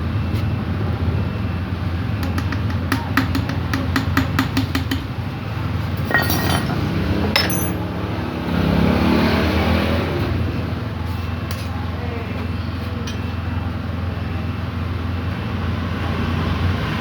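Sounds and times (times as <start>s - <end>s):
metal tools clinking: 6.0s - 7.9s.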